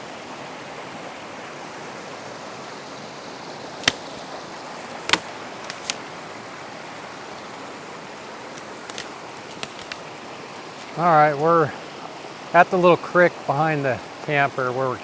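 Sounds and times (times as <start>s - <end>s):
creek running over rocks: 0.0s - 15.0s
sharp clicks or snaps: 3.8s - 4.2s, 4.8s - 6.0s.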